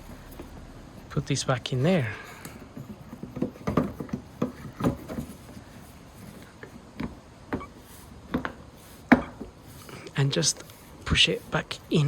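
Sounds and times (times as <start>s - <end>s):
plastic clicks and knocks: 2.8s - 5.3s.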